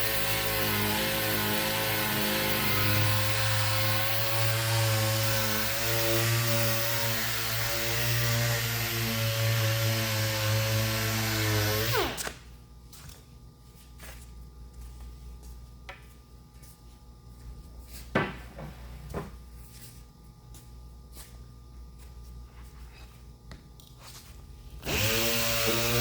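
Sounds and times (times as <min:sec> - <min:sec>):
electric sander spinning down: 0:24.9 - 0:26.0.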